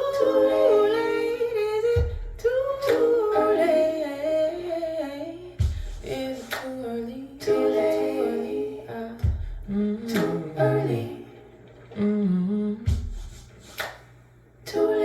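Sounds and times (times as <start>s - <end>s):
wordless female vocals humming: 0.0s - 13.2s
sharp snaps: 6.3s - 6.8s, 13.3s - 14.2s.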